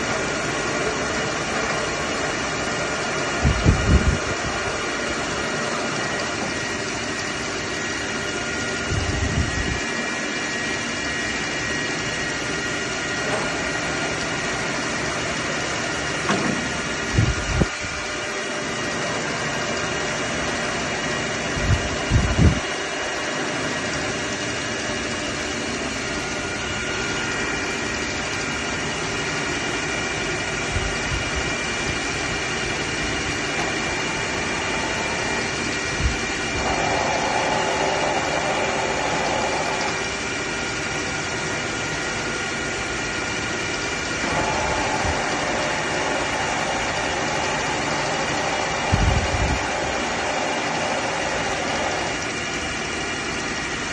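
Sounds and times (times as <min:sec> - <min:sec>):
milling machine humming: 0:00.0 - 0:53.9
machine whining tones: 0:23.7 - 0:53.9.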